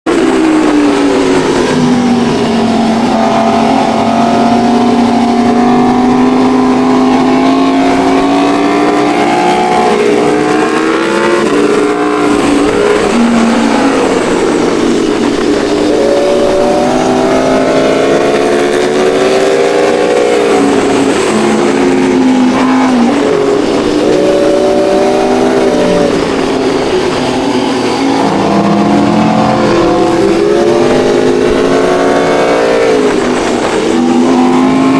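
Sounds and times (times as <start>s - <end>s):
motorcycle engines revving: 0.1s - 34.9s.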